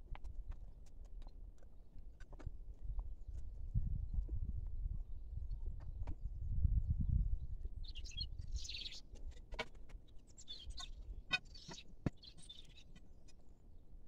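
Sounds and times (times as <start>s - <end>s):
small birds chirping: 7.4s - 13.7s.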